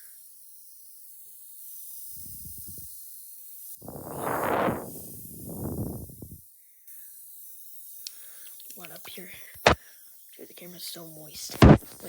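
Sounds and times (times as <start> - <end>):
soft crackle: 3.8 - 6.3.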